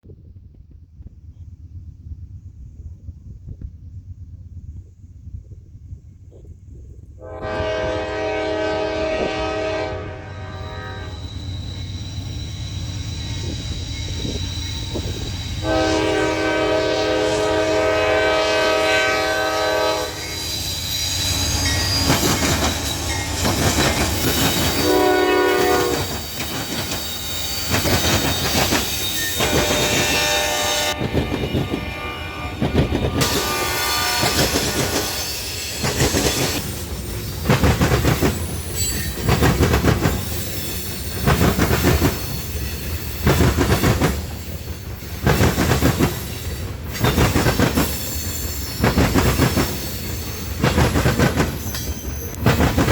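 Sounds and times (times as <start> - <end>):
locomotive horn: 7.2 - 11.3, 15.6 - 20.5, 24.6 - 26.2, 29.1 - 35.4
train wheels clickety-clack: 20.2 - 31.9, 32.5 - 52.9.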